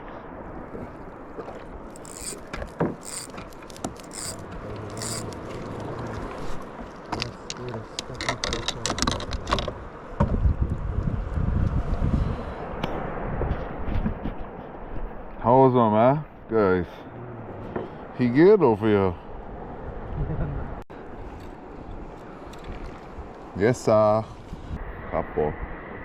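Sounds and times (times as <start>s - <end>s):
knocks and scrapes of gear: 2.0s - 9.8s
wind rumble on microphone: 4.2s - 15.6s, 19.3s - 26.0s.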